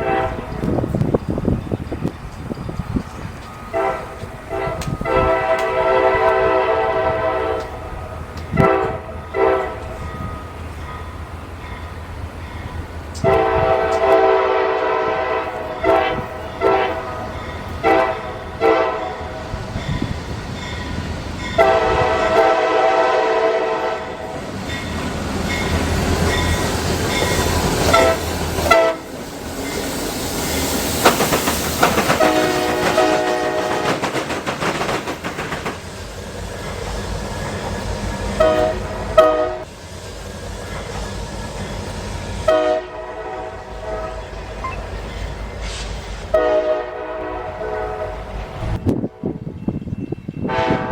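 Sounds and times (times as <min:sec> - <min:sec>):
locomotive air horn: 0:00.0 - 0:00.7, 0:03.7 - 0:10.0, 0:13.2 - 0:19.6, 0:21.6 - 0:24.4, 0:27.8 - 0:29.2, 0:32.0 - 0:34.0, 0:38.4 - 0:39.7, 0:42.4 - 0:44.4, 0:45.6 - 0:48.4, 0:50.4 - 0:50.9
train rumbling along track: 0:00.0 - 0:50.9.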